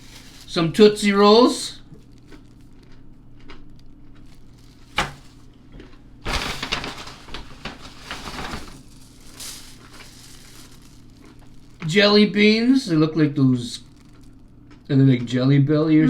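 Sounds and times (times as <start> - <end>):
candy bags crinkling: 0.0 - 14.9.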